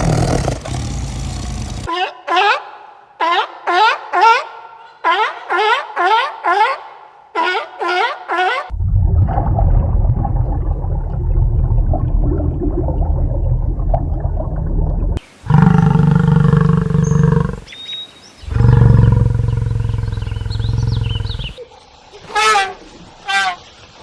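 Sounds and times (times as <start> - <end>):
large animal growling: 0.0 - 1.9, 15.5 - 17.7, 18.5 - 21.6
large animal roaring: 0.0 - 1.9, 15.5 - 17.7, 18.5 - 21.6.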